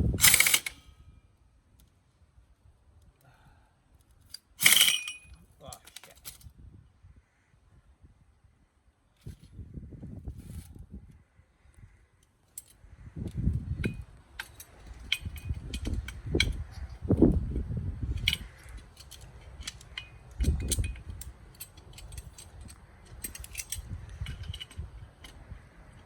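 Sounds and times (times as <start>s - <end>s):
metal tools clinking: 0.2s - 1.0s, 4.3s - 6.5s, 13.8s - 16.8s, 18.1s - 26.0s.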